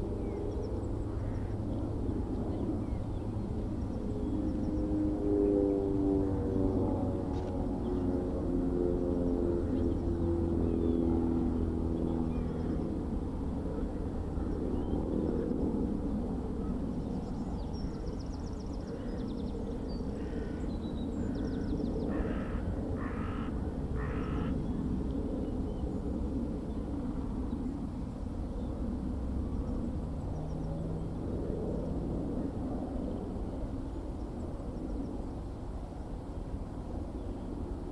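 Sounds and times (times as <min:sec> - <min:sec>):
droning hum: 0:00.0 - 0:37.9
low outdoor rumble: 0:00.0 - 0:37.9
crow cawing: 0:20.2 - 0:20.6, 0:21.6 - 0:24.6.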